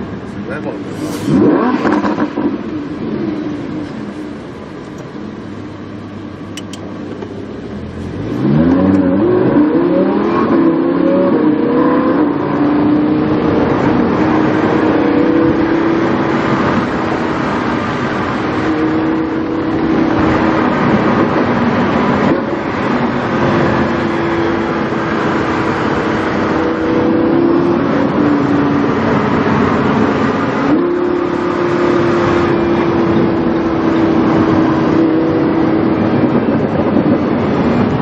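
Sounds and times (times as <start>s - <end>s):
sports car engine accelerating: 0.0s - 38.0s.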